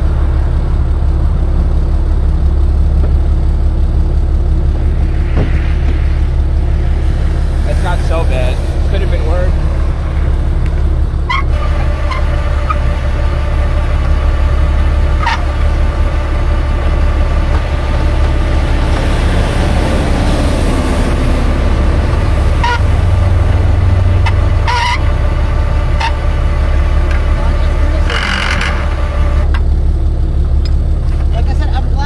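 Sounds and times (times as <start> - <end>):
vehicle engine rumbling: 0.0 - 32.0
high-pitched squeaks: 11.2 - 13.8, 15.0 - 15.9, 22.5 - 23.2, 24.2 - 26.5.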